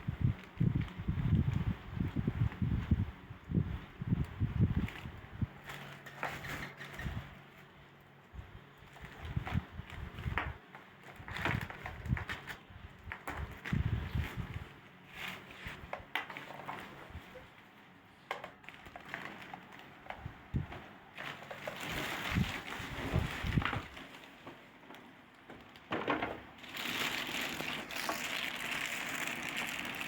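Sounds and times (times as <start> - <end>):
crinkling: 4.1 - 30.0
clicks and knocks of handling: 18.2 - 26.5.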